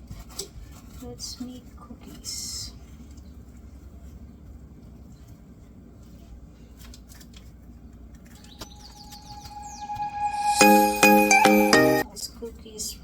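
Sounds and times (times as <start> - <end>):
background music: 8.8 - 12.0.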